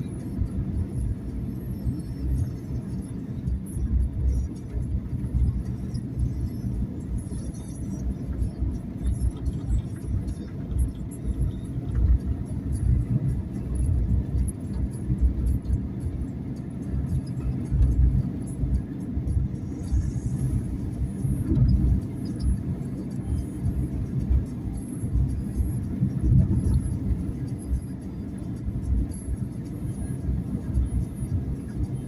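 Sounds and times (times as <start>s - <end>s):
car engine rumble: 0.0s - 32.0s
tyres on road: 0.0s - 32.0s.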